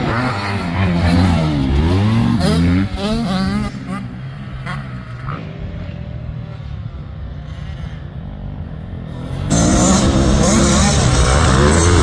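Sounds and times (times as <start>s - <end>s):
close engine revving: 0.0s - 4.0s, 9.2s - 12.0s
motocross engine drone: 0.0s - 12.0s.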